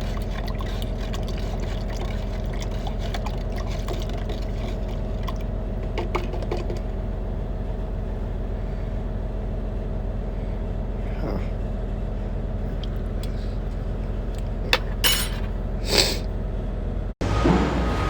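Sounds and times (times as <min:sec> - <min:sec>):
diesel engine idling: 0:06.9 - 0:14.7, 0:16.4 - 0:18.0.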